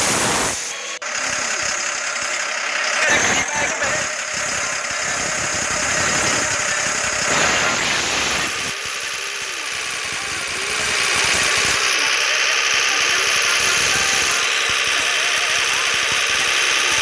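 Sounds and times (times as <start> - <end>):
tractor engines running: 0.0 - 17.0.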